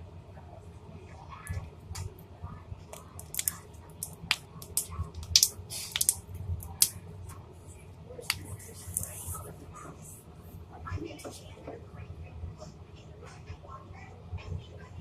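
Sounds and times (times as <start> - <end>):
slime popping and clicking: 3.0 - 7.0, 8.3 - 9.2.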